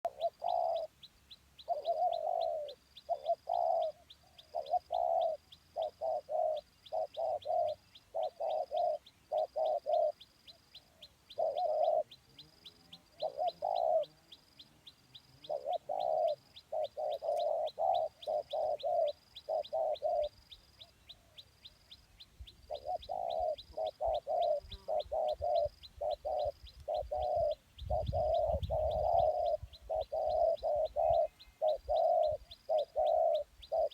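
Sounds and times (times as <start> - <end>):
doves cooing: 0.0 - 1.0, 1.6 - 14.6, 15.2 - 21.6, 22.6 - 33.9.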